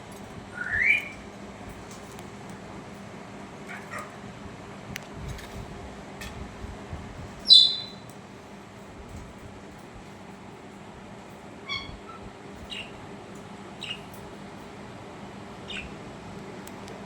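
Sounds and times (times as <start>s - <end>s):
budgerigars chirping: 7.5s - 8.0s, 12.7s - 13.0s, 13.8s - 14.1s, 15.7s - 15.9s.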